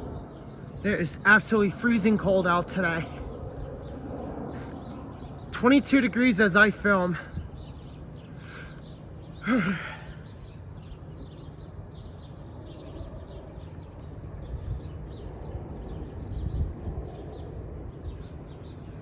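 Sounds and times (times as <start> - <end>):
sigh-like voice: 9.4 - 10.2.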